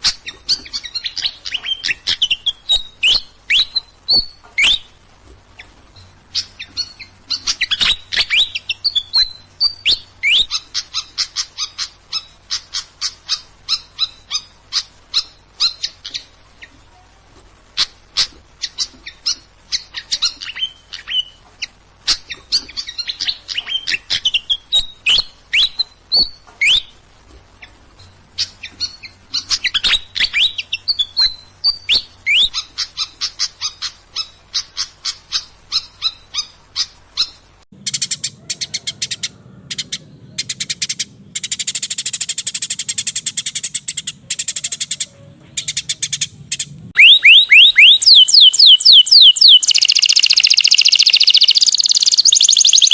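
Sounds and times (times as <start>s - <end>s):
songbird chirping and trilling: 0.0s - 52.9s.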